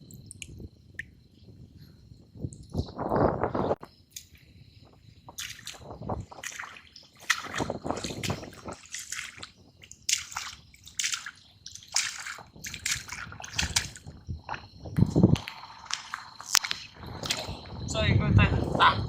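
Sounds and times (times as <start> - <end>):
water sloshing: 4.1 - 17.9
wet mud squelching: 5.3 - 17.8.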